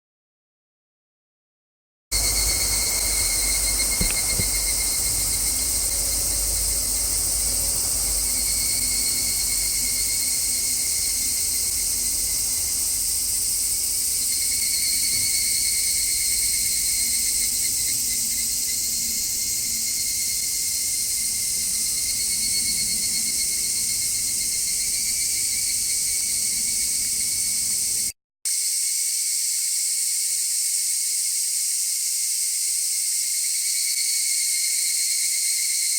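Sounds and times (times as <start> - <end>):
cicadas droning: 2.1 - 35.9
distant car traffic rumble: 2.2 - 18.6.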